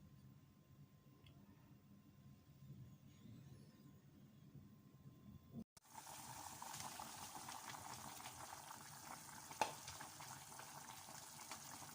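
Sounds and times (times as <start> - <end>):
soup bubbling in a pot: 5.8 - 11.9.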